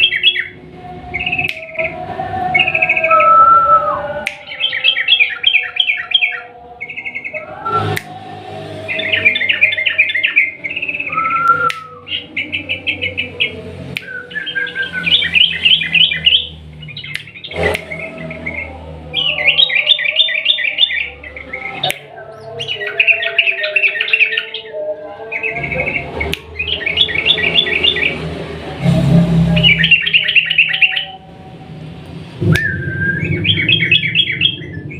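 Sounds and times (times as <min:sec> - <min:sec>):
bird singing rolling trill: 0:00.0 - 0:08.0, 0:08.6 - 0:28.4, 0:29.3 - 0:31.6, 0:32.4 - 0:34.9
sharp clicks: 0:17.1 - 0:18.0.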